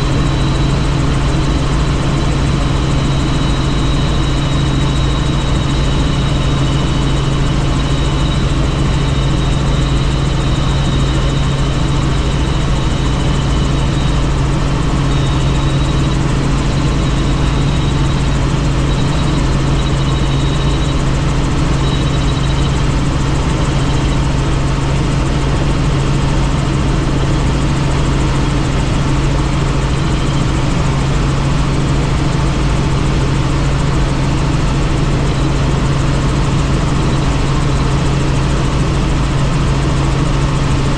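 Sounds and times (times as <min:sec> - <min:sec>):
faint high whining tones: 0:00.0 - 0:25.4
helicopter rotor and engine drone: 0:00.0 - 0:40.9.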